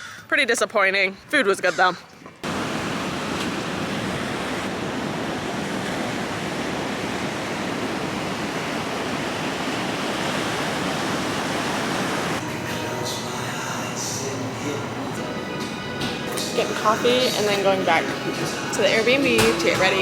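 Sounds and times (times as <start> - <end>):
rushing water: 2.4 - 12.4.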